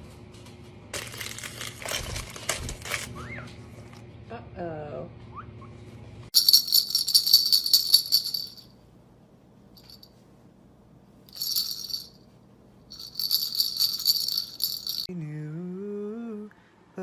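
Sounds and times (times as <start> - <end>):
rattle shaking: 6.4 - 8.7, 9.8 - 10.1, 11.3 - 12.2, 12.9 - 15.1.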